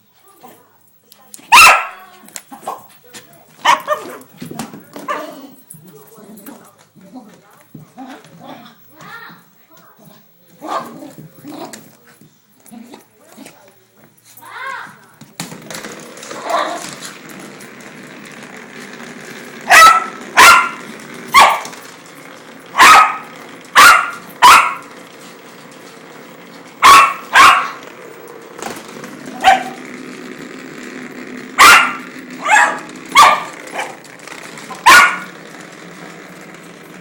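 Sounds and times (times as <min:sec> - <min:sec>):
dog barking: 0:01.5 - 0:02.0, 0:03.6 - 0:04.2, 0:19.7 - 0:21.7, 0:22.8 - 0:23.2, 0:23.8 - 0:24.8, 0:26.8 - 0:27.8, 0:29.4 - 0:29.8, 0:31.6 - 0:34.0, 0:34.8 - 0:35.3.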